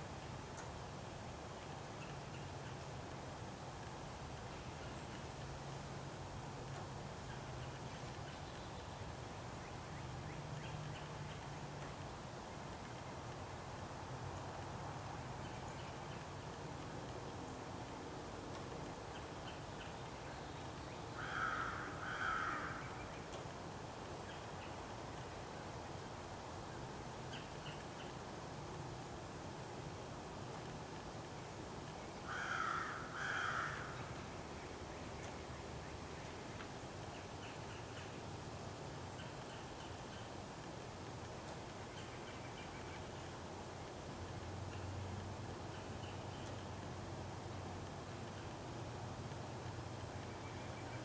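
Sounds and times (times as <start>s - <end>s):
faint background hiss: 0.0s - 51.0s
crow cawing: 21.2s - 22.9s, 32.3s - 34.0s.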